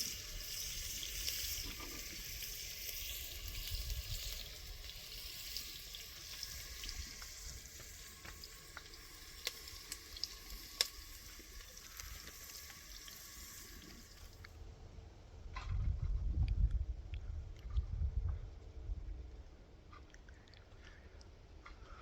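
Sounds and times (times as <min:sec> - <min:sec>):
food sizzling in a pan: 0:00.0 - 0:14.4.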